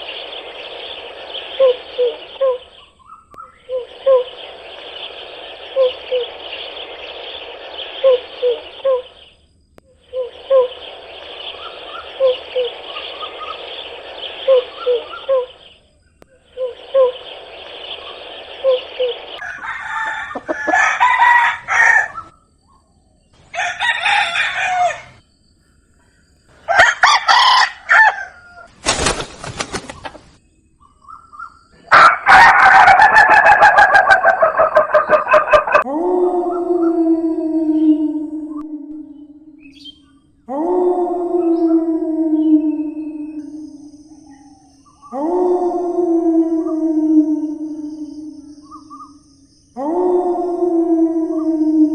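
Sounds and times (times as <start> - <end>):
steady bird call: 0.0 - 22.8, 30.8 - 51.9
roosters crowing: 19.4 - 22.3, 23.4 - 25.2, 26.6 - 28.7, 31.8 - 39.6
noisy farmyard: 19.4 - 22.4, 23.4 - 25.2, 26.6 - 35.9
chickens clucking and chirping: 31.0 - 35.9.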